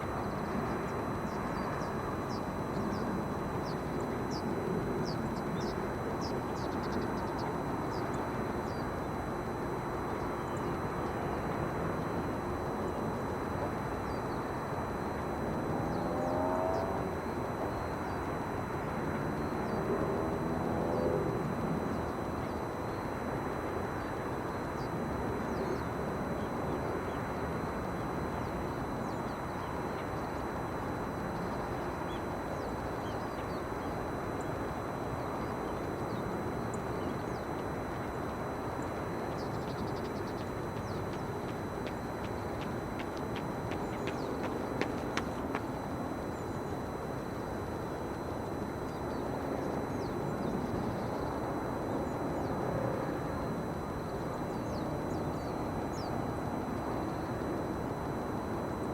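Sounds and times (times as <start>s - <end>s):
engine rising in pitch: 15.6s - 17.2s.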